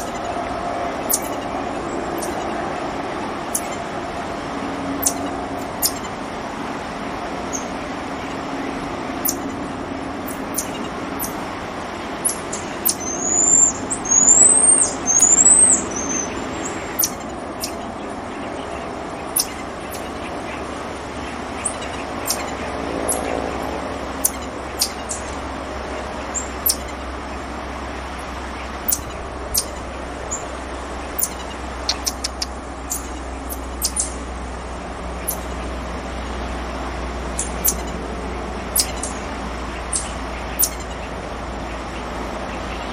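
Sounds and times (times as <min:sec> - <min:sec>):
steady background hum: 0:00.0 - 0:42.9
marmoset high whistle calls: 0:01.0 - 0:01.4, 0:02.2 - 0:02.5, 0:03.5 - 0:03.8, 0:05.0 - 0:06.1, 0:09.2 - 0:09.4, 0:10.3 - 0:11.4, 0:12.2 - 0:17.8, 0:19.4 - 0:20.1, 0:22.2 - 0:22.5, 0:24.2 - 0:25.1, 0:26.4 - 0:26.9, 0:28.9 - 0:30.4, 0:31.2 - 0:34.1, 0:35.2 - 0:35.5, 0:37.5 - 0:37.9, 0:38.7 - 0:39.2, 0:39.9 - 0:40.9.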